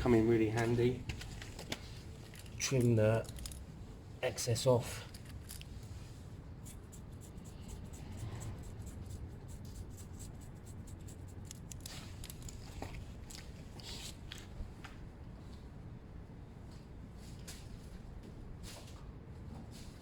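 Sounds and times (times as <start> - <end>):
scratchy rasping: 6.5 - 12.6.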